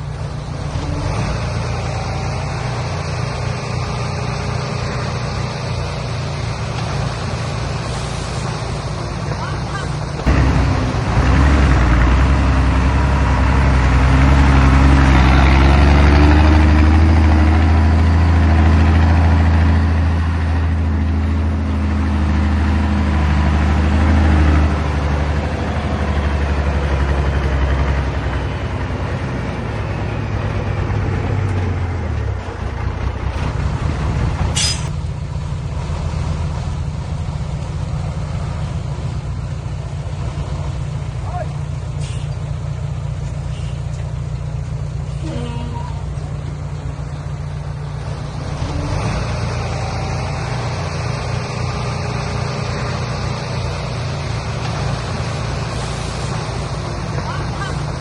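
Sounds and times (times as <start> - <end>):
truck diesel engine running: 0.0 - 58.0
air brake hiss: 42.0 - 42.4.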